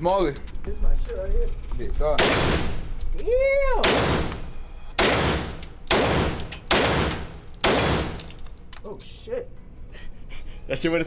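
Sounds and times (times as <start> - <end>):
handgun shots echoing: 2.2 - 3.1, 3.8 - 8.6.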